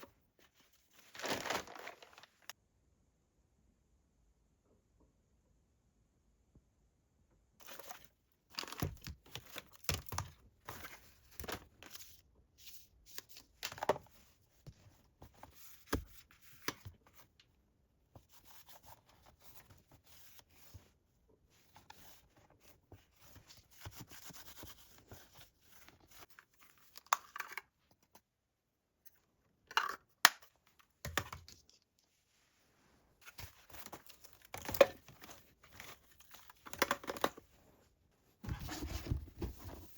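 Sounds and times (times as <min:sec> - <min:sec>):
rustling and crinkling: 0:00.4 - 0:02.6, 0:31.5 - 0:39.9.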